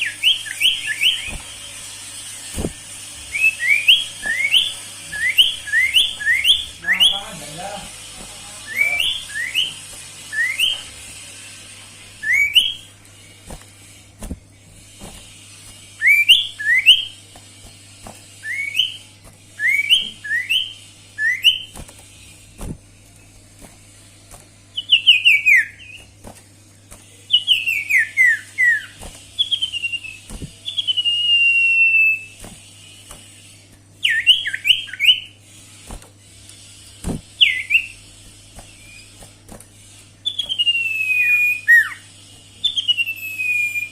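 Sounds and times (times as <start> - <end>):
bird whistling song: 0.0 - 1.9, 2.5 - 7.4, 8.6 - 11.1, 12.2 - 14.0, 14.7 - 17.3, 18.3 - 21.9, 24.7 - 26.2, 27.1 - 35.4, 37.3 - 43.9.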